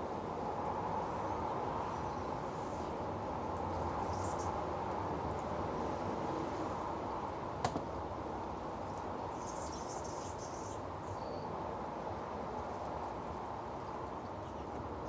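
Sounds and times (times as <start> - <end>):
faint bird chirps: 9.4 - 11.5.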